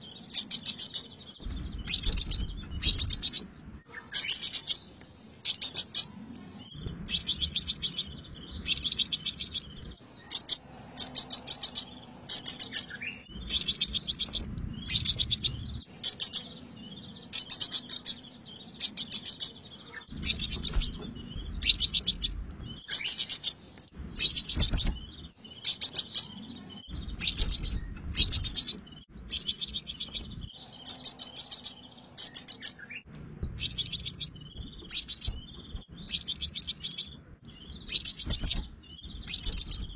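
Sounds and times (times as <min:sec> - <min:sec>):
bird chipping trills: 0:00.0 - 0:39.9
thin bird twittering: 0:00.0 - 0:39.9
low rumble: 0:01.3 - 0:03.9, 0:06.4 - 0:10.0, 0:13.2 - 0:15.9, 0:20.1 - 0:22.9, 0:23.9 - 0:25.3, 0:26.6 - 0:30.7, 0:33.1 - 0:39.9.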